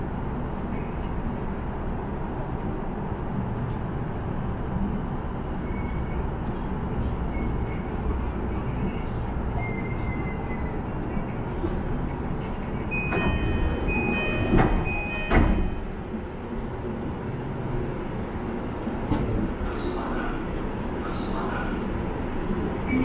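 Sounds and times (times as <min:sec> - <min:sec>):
train running rumble: 0:00.0 - 0:23.0
high brake squeal: 0:09.5 - 0:10.8.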